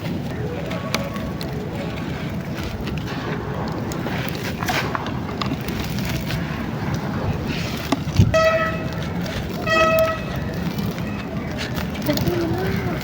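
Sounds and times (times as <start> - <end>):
street background noise: 0.0 - 13.0
horn honking: 8.2 - 10.8.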